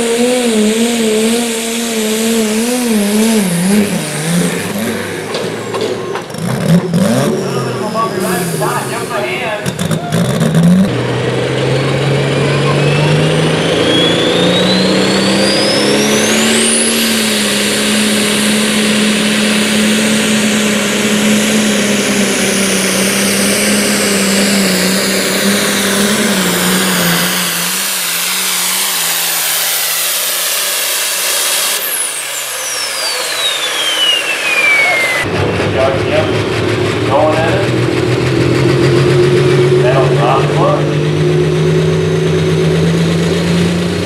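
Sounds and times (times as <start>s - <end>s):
engine at full throttle: 0.0s - 44.0s
turbo whistle: 13.0s - 19.2s, 26.4s - 35.3s.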